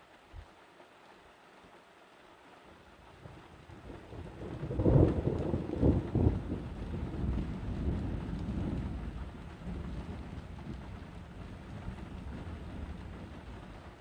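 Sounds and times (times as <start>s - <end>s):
rain falling: 0.0s - 14.0s
thunder crack and rumble: 3.7s - 14.0s.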